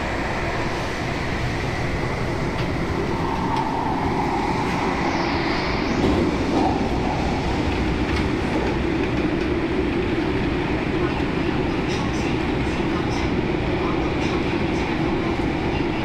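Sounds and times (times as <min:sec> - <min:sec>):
rumble of wheels on rail: 0:00.0 - 0:16.0
high whine: 0:00.6 - 0:10.5.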